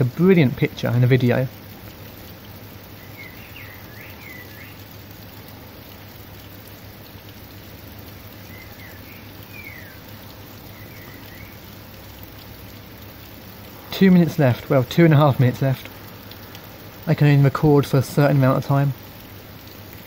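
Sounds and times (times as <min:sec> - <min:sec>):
steady rain falling: 0:00.0 - 0:20.0
bird chirping: 0:03.0 - 0:04.9, 0:08.4 - 0:11.7.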